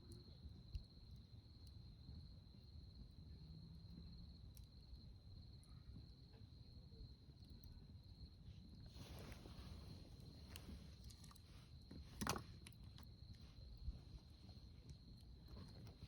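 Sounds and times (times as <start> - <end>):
campfire crackles: 8.8 - 16.0.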